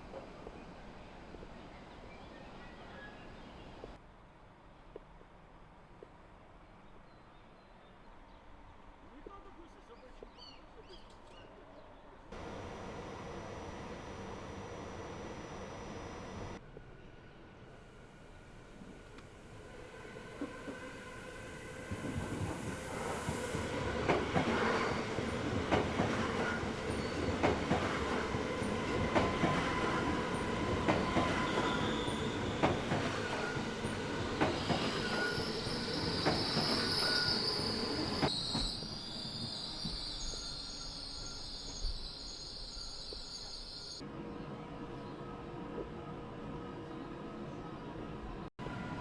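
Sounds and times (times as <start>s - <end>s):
train rumble: 12.4s - 16.8s, 18.5s - 40.5s
high wheel squeal: 34.4s - 44.0s.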